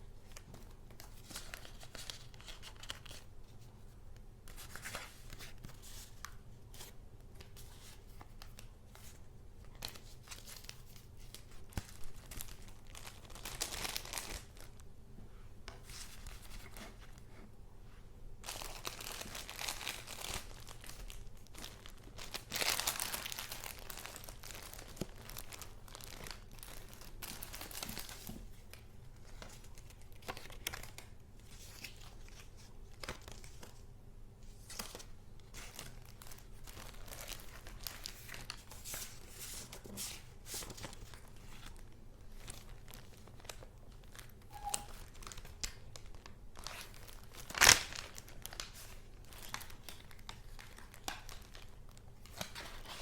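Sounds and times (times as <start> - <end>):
paper and card rustling: 0.2 - 3.9, 34.5 - 43.6, 52.2 - 53.0.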